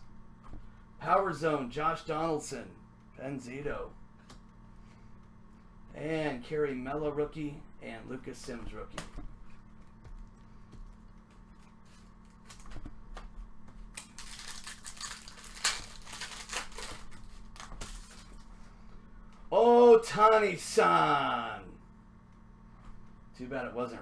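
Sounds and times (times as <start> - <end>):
wrapper crinkling and rustling: 13.9 - 18.5.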